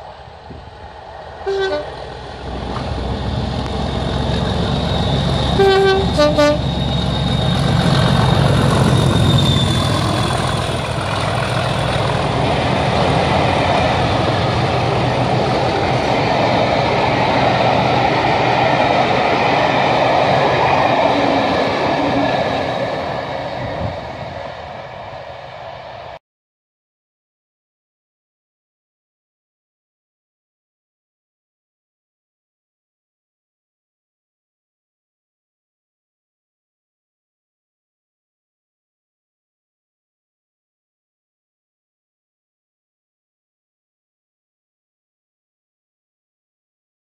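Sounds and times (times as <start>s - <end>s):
train rumbling past: 0.0s - 26.2s
train horn: 1.4s - 2.0s, 5.4s - 6.8s.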